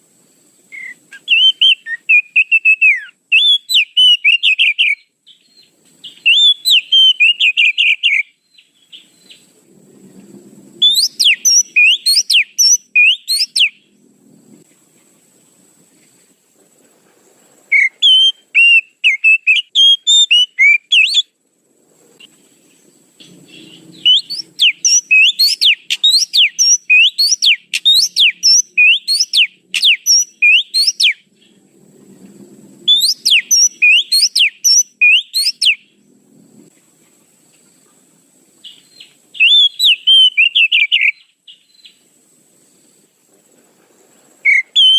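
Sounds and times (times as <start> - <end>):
bird song whistles: 0.7 - 9.5, 10.8 - 14.0, 17.7 - 21.3, 23.4 - 31.6, 32.8 - 36.0, 38.6 - 42.0, 44.4 - 44.9.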